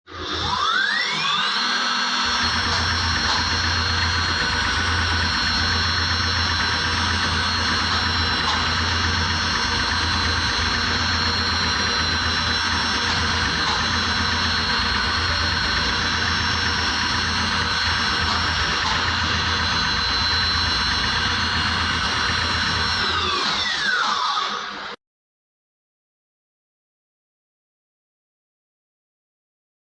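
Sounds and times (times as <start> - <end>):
spindle high whine: 0.1 - 25.0
low pulsing hum: 2.3 - 23.2.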